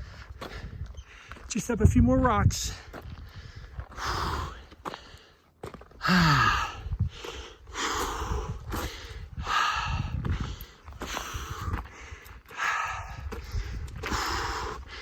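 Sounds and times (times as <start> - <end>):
person breathing heavily: 0.0 - 1.5, 2.7 - 15.0
person groaning: 6.0 - 6.8.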